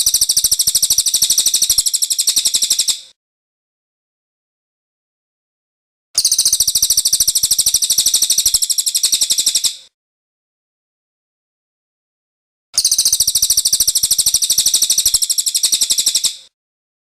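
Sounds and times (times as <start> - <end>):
bird trilling: 0.0 - 3.0, 6.2 - 9.8, 12.8 - 16.5.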